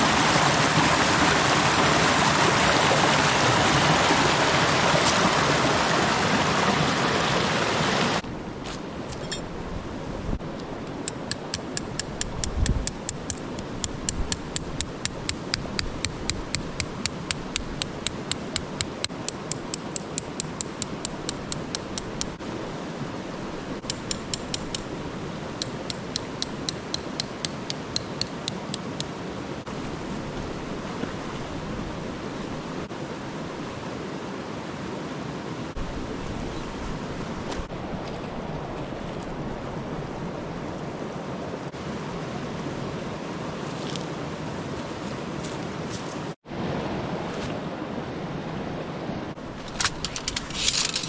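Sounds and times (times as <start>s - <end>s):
sharp regular tapping: 10.9s - 22.4s, 23.8s - 25.0s, 25.6s - 29.2s.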